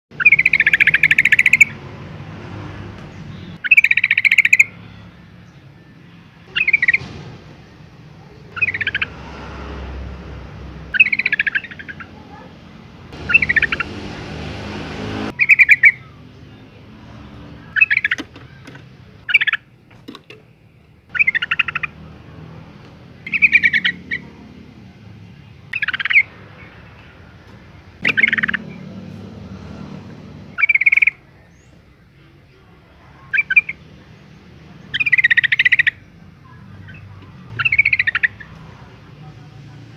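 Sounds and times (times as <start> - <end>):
bird chattering calls: 0.2 - 1.8, 3.3 - 4.8, 6.5 - 7.0, 8.5 - 9.2, 10.9 - 12.5, 13.1 - 14.2, 15.3 - 16.2, 17.7 - 19.7, 21.1 - 22.1, 23.2 - 24.4, 25.7 - 26.7, 28.0 - 28.9, 30.5 - 31.7, 33.2 - 33.9, 34.8 - 38.6.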